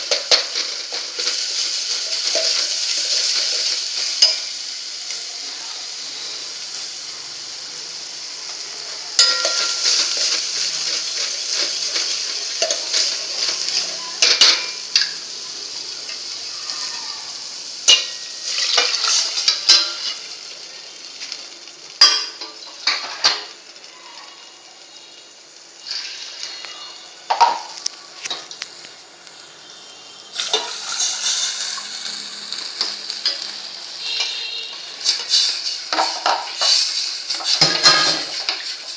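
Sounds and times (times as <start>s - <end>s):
hot oil sizzling in a pan: 0.0s - 38.9s
spoon clinking against pan: 4.2s - 4.5s, 9.2s - 10.3s.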